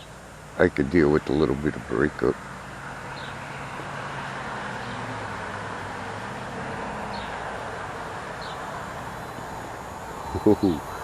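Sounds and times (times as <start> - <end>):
faint high chirps: 8.4 - 11.0.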